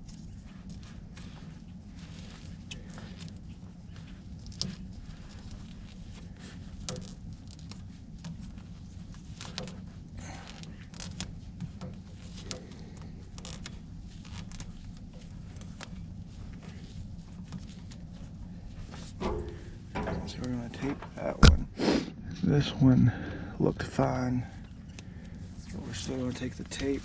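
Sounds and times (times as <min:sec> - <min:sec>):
steady low hum: 0:00.0 - 0:27.0
tape clicks and crackles: 0:02.2 - 0:16.8.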